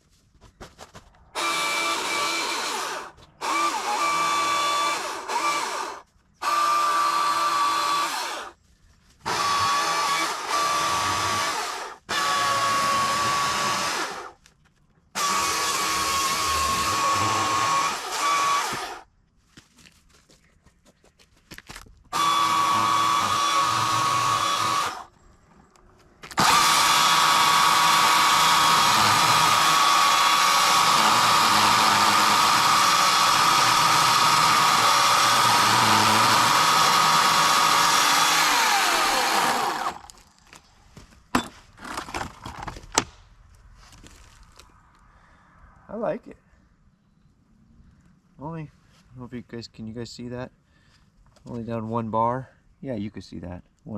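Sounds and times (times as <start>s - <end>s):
chainsaw whining while cutting wood: 1.4s - 8.6s, 9.2s - 14.4s, 15.2s - 19.1s, 22.1s - 25.1s, 26.3s - 40.2s.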